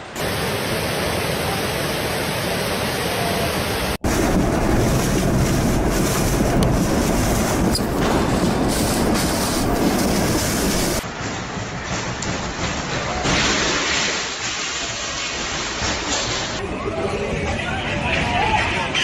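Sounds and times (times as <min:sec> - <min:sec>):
storm wind rushing: 0:03.3 - 0:11.9
wind buffeting microphone: 0:04.0 - 0:11.0.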